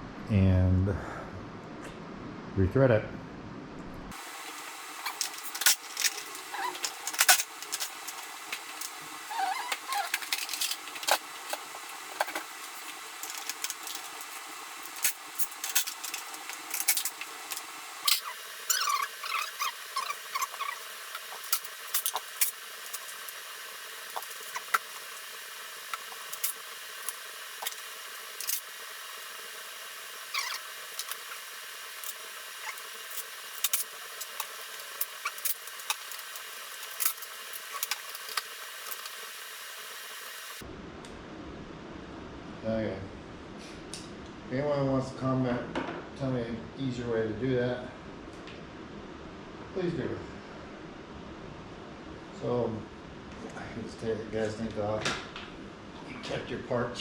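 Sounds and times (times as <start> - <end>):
steady hiss: 4.1 - 40.7.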